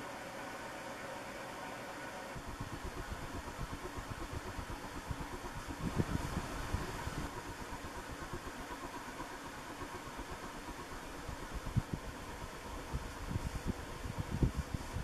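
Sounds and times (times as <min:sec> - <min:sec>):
ceiling fan air whoosh: 0:00.0 - 0:15.0
faint motor hum: 0:00.0 - 0:15.0.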